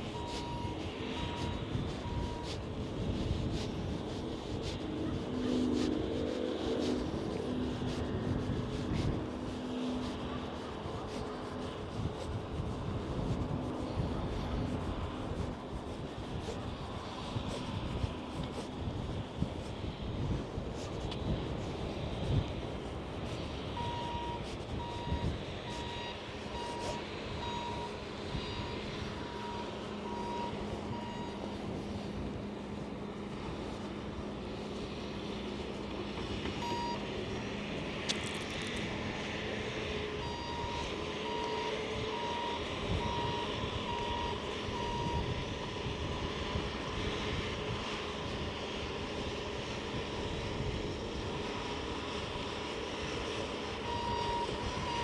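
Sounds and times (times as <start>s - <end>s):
vehicle reversing alarm beeping: 0.0s - 19.0s, 23.7s - 32.9s, 36.4s - 37.2s, 39.7s - 46.7s, 53.0s - 55.0s
low hum: 0.0s - 49.8s
vehicle noise: 0.0s - 55.0s.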